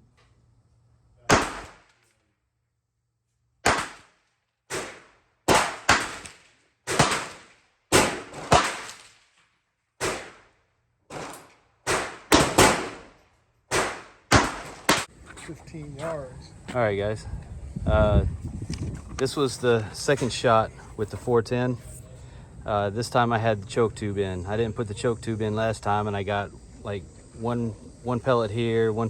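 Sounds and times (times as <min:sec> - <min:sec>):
pistol shots: 0:01.3 - 0:01.9, 0:03.6 - 0:09.2, 0:10.0 - 0:10.5, 0:11.1 - 0:15.1.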